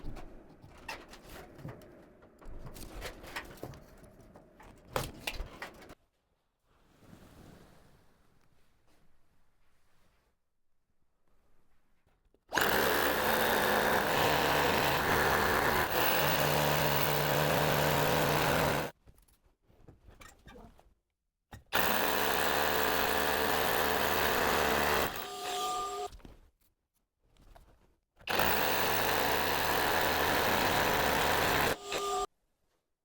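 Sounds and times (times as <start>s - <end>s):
handheld power tool running: 12.5s - 18.9s, 21.8s - 26.1s, 28.3s - 32.3s.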